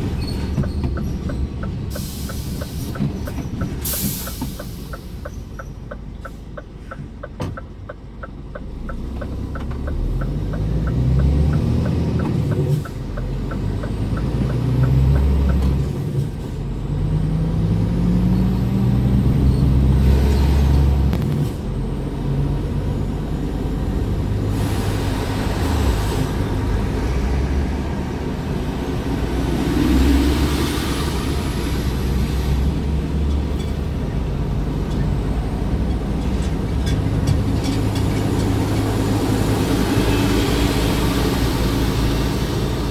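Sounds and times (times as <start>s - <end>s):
truck diesel engine accelerating: 0.0s - 42.9s
regular ticking: 0.6s - 16.0s.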